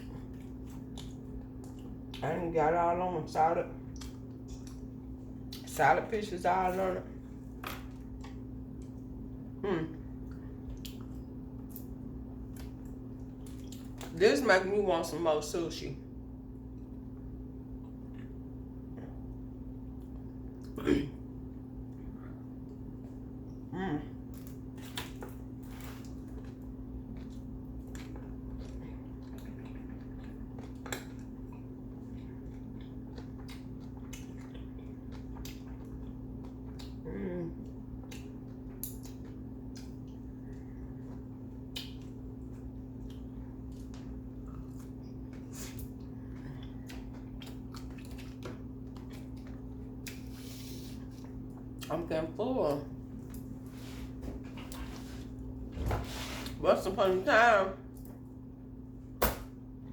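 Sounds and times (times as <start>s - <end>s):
wet chewing and mouth smacks: 0.0s - 2.2s, 3.8s - 5.7s, 7.4s - 9.4s, 10.2s - 14.2s, 24.3s - 51.9s
steady background hum: 0.0s - 59.9s
person humming mm: 9.6s - 10.0s.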